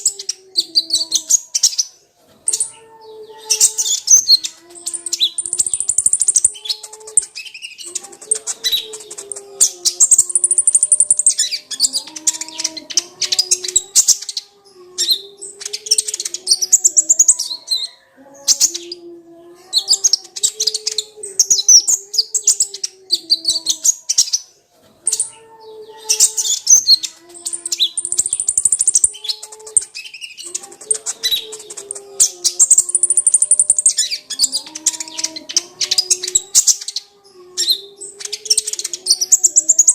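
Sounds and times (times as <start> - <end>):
bird chattering trills: 2.5 - 19.1, 25.1 - 39.9
lower wavering bird tones: 2.5 - 24.4, 25.1 - 39.9.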